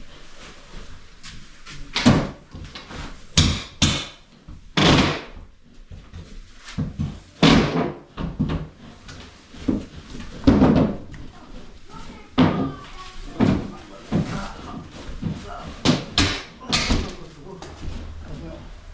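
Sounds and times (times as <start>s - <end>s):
knocks and bangs from repair work: 1.9s - 11.4s, 12.0s - 18.2s.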